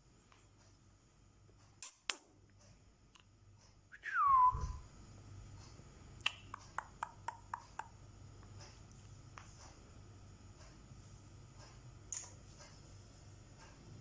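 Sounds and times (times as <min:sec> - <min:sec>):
parrot whistle falling in pitch: 0:04.0 - 0:04.8.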